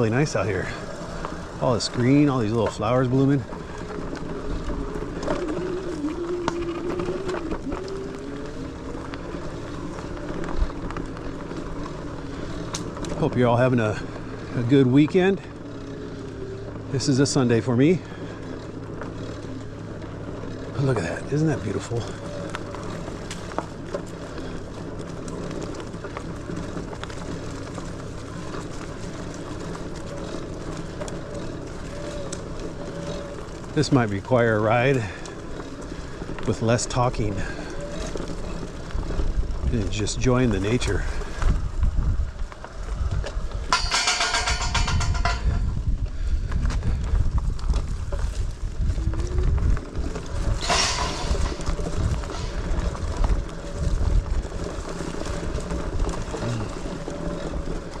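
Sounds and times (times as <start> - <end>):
electric bike motor whining: 0.0 - 43.8, 45.6 - 58.0
bike clicks and rattles: 0.0 - 58.0
tyres rolling on dirt: 0.0 - 58.0.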